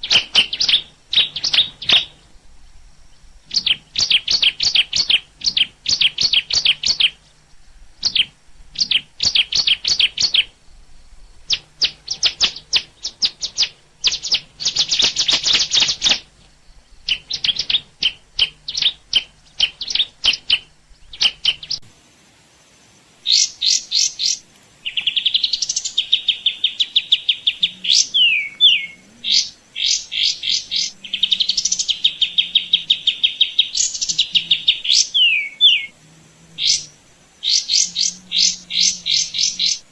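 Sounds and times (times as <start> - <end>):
bird trilling: 0.0 - 21.9, 23.2 - 39.9
small birds chirping: 0.0 - 39.9.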